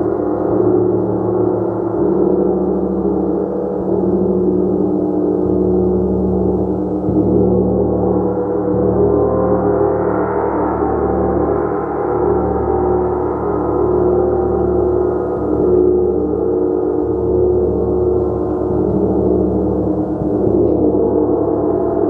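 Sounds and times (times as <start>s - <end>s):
gong ringing: 5.4s - 22.0s.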